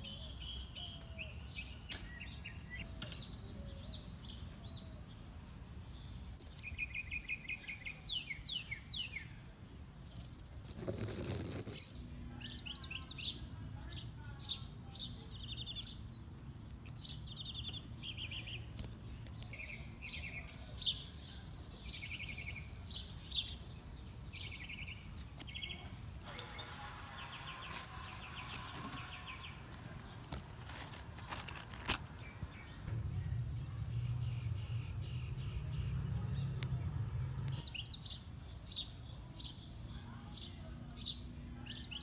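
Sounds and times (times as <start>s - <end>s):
small birds chirping: 0.0s - 42.0s
low rumble: 32.1s - 38.3s.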